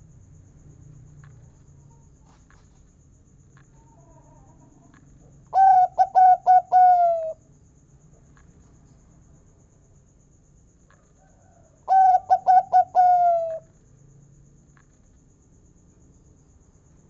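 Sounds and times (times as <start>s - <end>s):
dove cooing: 5.5s - 7.4s, 11.9s - 13.6s.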